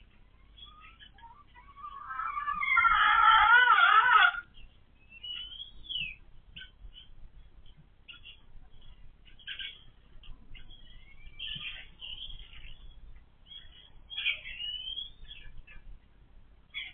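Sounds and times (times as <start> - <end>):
hens squawking: 0.5 - 4.5.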